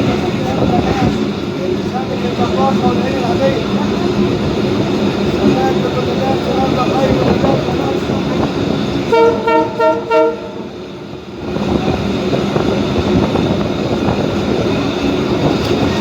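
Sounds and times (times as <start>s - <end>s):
train carriage rumble: 0.0s - 16.0s
train horn toots: 9.0s - 10.7s.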